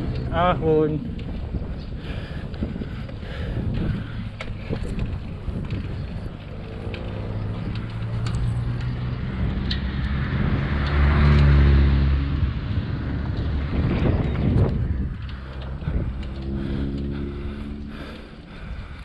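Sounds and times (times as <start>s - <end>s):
vehicle engine passing by: 6.4s - 18.6s.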